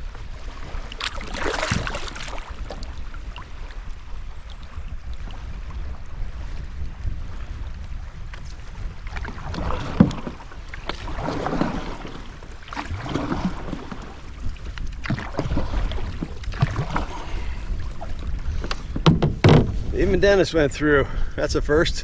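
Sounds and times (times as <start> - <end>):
low wind rumble on microphone: 0.0 - 22.0
water rushing and splashing: 0.2 - 5.6, 9.0 - 18.7.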